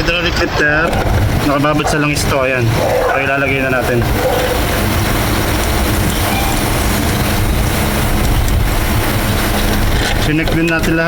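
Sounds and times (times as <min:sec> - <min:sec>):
machinery drone with hiss: 0:00.0 - 0:11.0.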